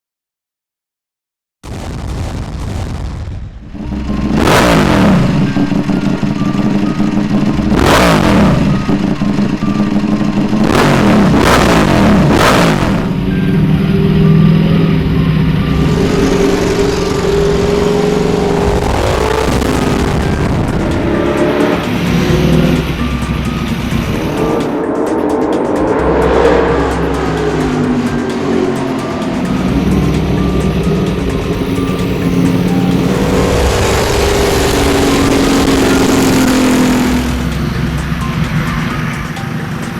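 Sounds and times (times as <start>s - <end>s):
motorcycle passing at high revs: 3.8s - 39.7s
music with steady beat: 18.3s - 39.9s.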